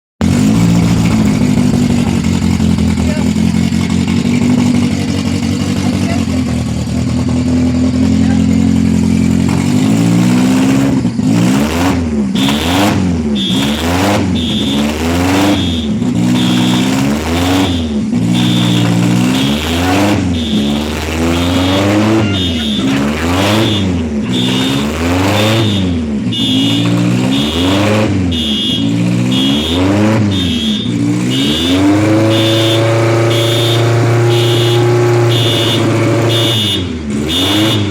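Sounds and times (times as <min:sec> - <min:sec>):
car engine idling and revving: 0:00.2 - 0:37.9
high beeping: 0:12.4 - 0:36.8.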